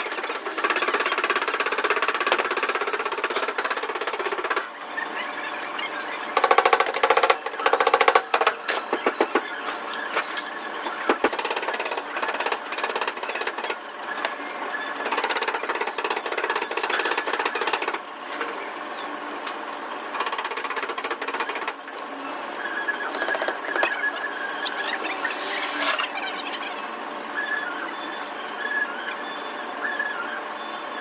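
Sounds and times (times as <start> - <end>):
power tool rattling hammer: 0.0 - 4.6, 6.4 - 9.4, 11.1 - 13.8, 15.0 - 18.0, 20.2 - 21.8.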